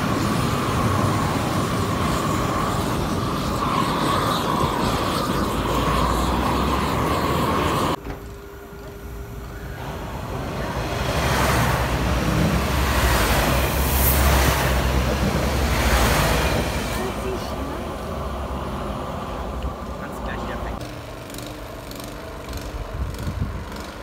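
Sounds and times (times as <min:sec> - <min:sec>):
high squeal: 0:00.0 - 0:08.0, 0:09.4 - 0:17.0
diesel train engine rumble: 0:00.0 - 0:24.0
electric train whine: 0:00.0 - 0:24.0
train wheels on rails: 0:09.8 - 0:19.9, 0:20.7 - 0:24.0.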